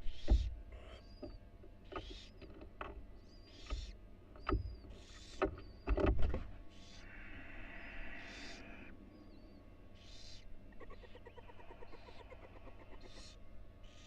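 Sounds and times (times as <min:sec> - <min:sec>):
owl hissing calls: 0:06.7 - 0:09.0, 0:10.0 - 0:14.0.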